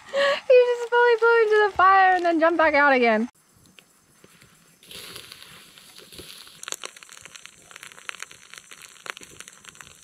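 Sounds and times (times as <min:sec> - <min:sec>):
plastic wrapper crinkling: 0:04.9 - 0:10.0
wrapper tearing open: 0:04.9 - 0:10.0.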